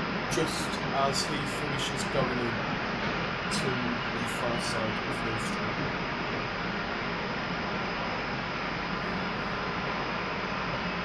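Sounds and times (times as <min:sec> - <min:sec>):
electric train arriving: 0:00.0 - 0:11.0
station platform rumble and hiss: 0:00.0 - 0:11.0.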